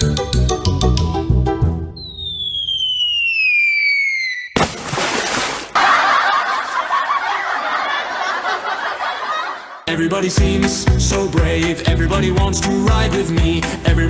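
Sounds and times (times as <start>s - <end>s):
whistle sliding down in pitch: 1.9s - 4.6s
giggling laughter: 5.8s - 9.9s.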